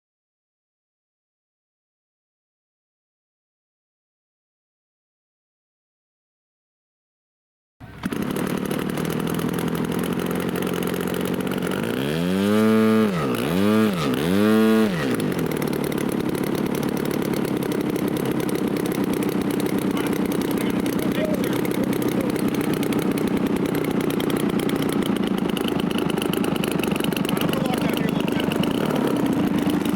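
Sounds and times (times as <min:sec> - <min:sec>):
model aircraft engine revving: 0:07.8 - 0:29.9.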